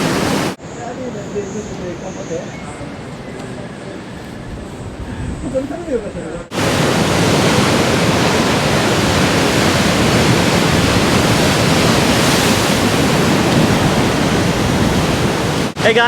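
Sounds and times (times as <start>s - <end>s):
surf crashing on rocks: 0.0s - 0.6s, 6.5s - 16.0s.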